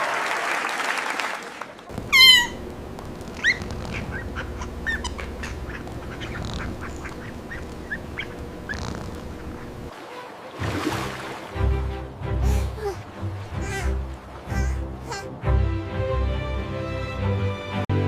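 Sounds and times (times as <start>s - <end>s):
birds calling: 1.9s - 10.0s.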